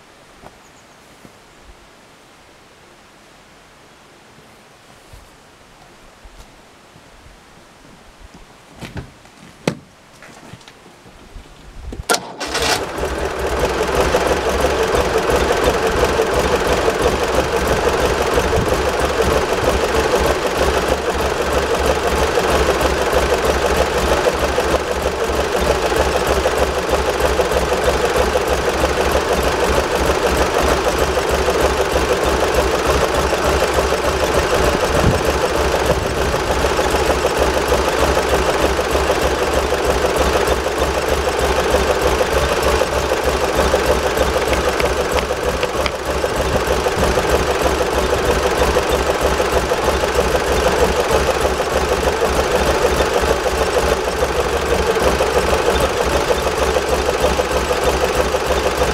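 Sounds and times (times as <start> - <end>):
engine starting and running: 12.0 - 58.9.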